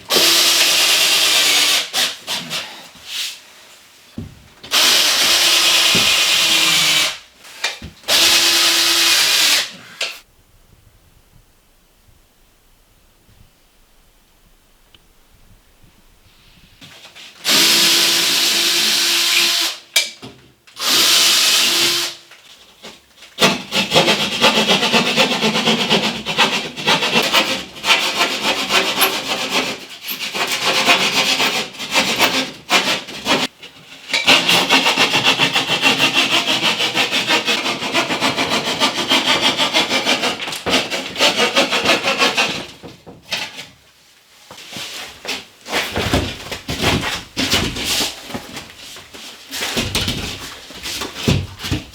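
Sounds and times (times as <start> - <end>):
hand saw cutting wood: 4.7 - 10.2, 23.4 - 42.8.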